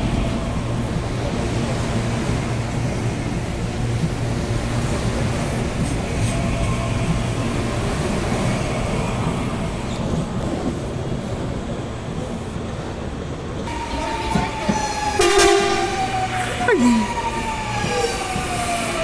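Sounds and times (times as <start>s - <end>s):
train rumbling past: 0.0s - 19.0s
train horn: 13.7s - 18.2s.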